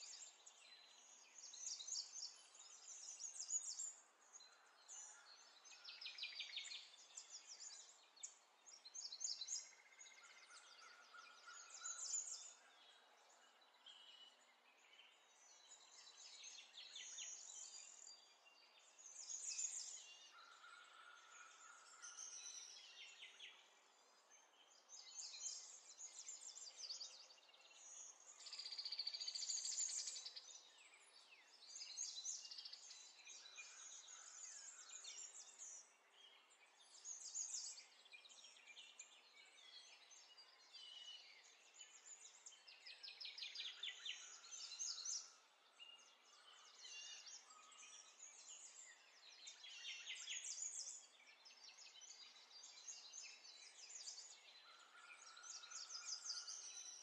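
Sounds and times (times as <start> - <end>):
birds chirping and trilling: 24.6 - 57.0.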